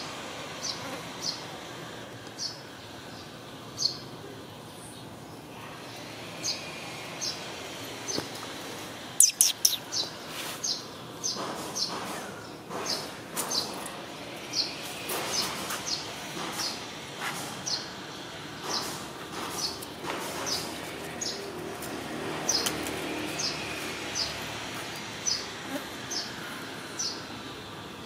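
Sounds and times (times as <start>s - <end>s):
small bird chirping: 9.2s - 11.9s.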